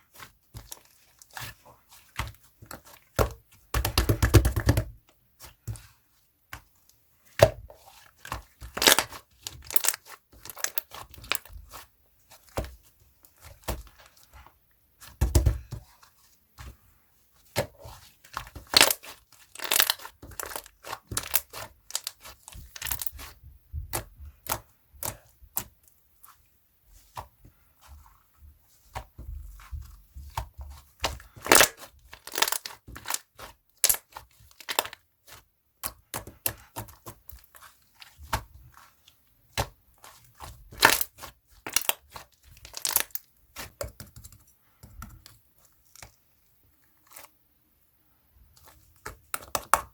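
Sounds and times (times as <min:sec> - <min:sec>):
slime popping and crackling: 0:08.7 - 0:11.5, 0:18.5 - 0:25.7, 0:31.0 - 0:35.0, 0:39.5 - 0:44.3.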